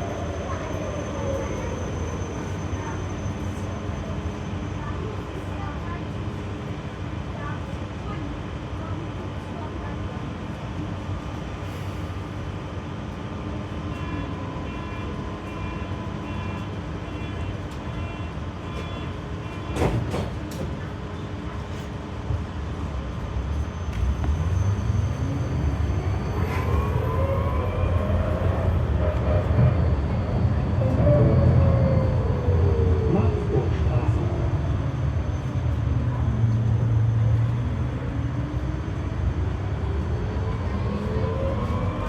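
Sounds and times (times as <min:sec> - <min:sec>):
tram electric hum: 0:00.0 - 0:42.0.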